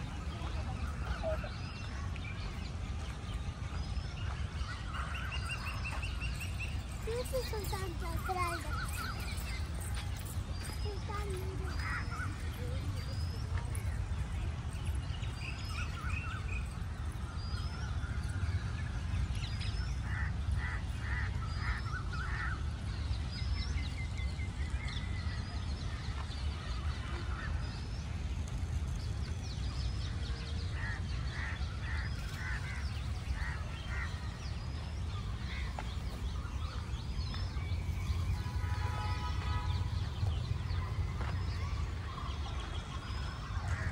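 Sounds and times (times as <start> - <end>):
birds chirping: 0.0 - 43.9.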